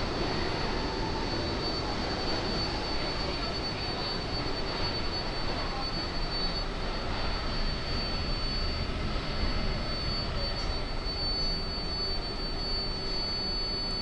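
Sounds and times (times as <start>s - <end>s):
ventilation fans rushing: 0.0s - 13.2s
high-pitched whine: 0.0s - 14.0s.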